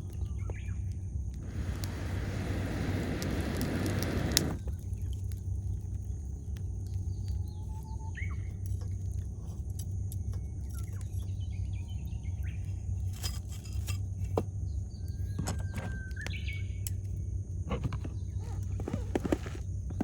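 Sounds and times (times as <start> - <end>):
campfire crackling and popping: 0.0 - 13.0
low steady rumble: 0.0 - 20.0.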